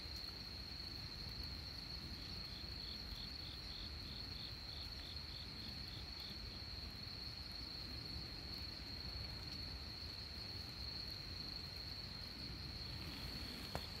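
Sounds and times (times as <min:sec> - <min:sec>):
cricket chirping: 0:00.0 - 0:14.0
cricket trilling: 0:02.3 - 0:14.0.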